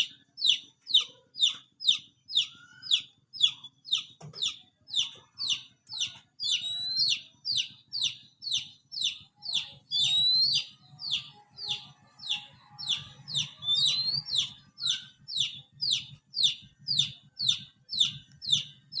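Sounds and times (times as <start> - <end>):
bird calling in high notes: 0.0 - 18.7
rising bird whistle: 6.4 - 18.7.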